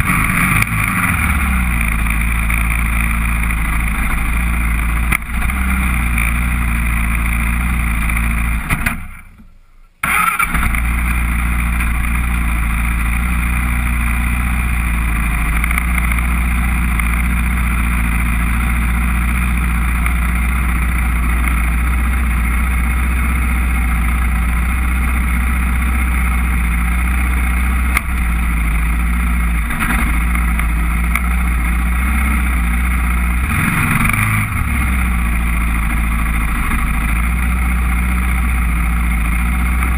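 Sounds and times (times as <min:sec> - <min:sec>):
quad engine rumbling: 0:00.0 - 0:39.9.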